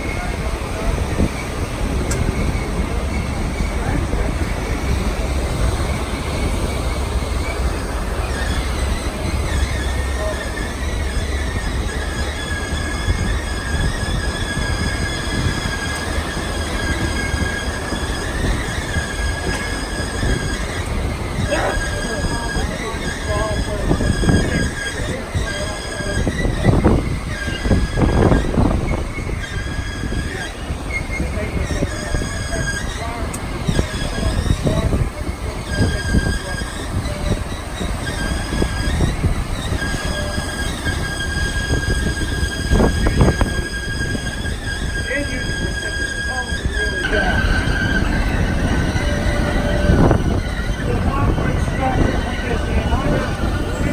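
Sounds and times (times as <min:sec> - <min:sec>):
steel wheel squeal: 0:00.0 - 0:53.9
train rumbling on track: 0:00.0 - 0:53.9.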